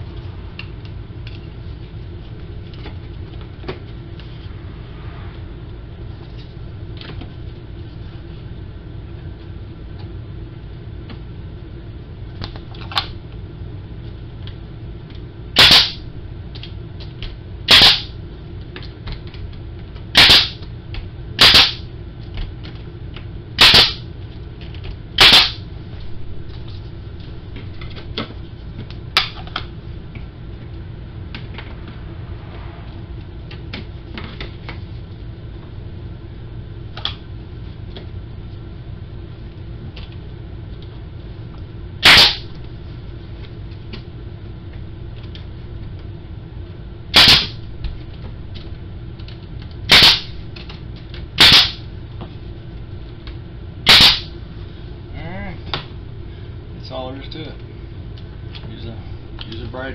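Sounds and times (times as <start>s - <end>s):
nail gun shots: 15.6s - 16.0s, 17.7s - 18.1s, 20.2s - 20.6s, 21.4s - 21.8s, 23.6s - 24.0s, 25.2s - 25.6s, 42.0s - 42.4s, 47.2s - 47.6s, 49.9s - 50.3s, 51.4s - 51.8s, 53.9s - 54.3s.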